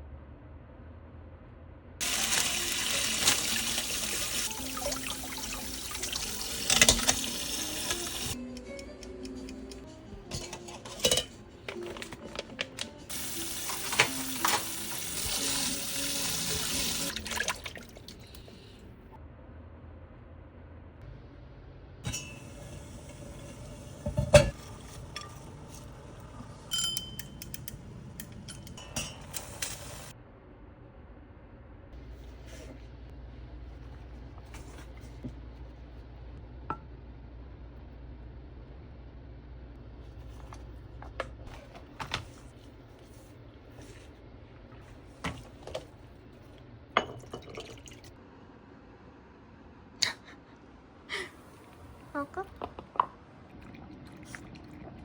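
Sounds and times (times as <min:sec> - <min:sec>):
tap water running into sink: 0:02.0 - 0:08.4, 0:13.1 - 0:18.4
utensils and dishes clinking: 0:02.0 - 0:16.2, 0:22.1 - 0:30.1.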